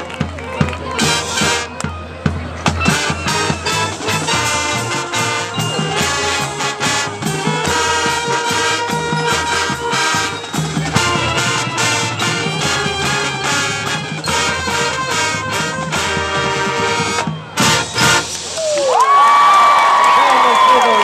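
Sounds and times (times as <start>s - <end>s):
marching band playing: 0.0s - 19.0s
brass section chords: 0.9s - 1.8s, 2.8s - 18.4s
steady drum beat: 2.2s - 18.6s.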